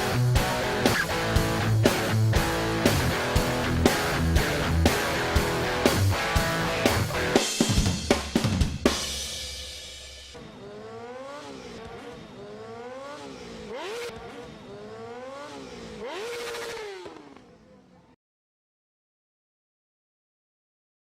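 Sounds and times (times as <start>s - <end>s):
motorcycle engine revving: 0.0s - 7.4s, 9.9s - 18.2s
loud music with drums and guitar: 0.0s - 10.4s.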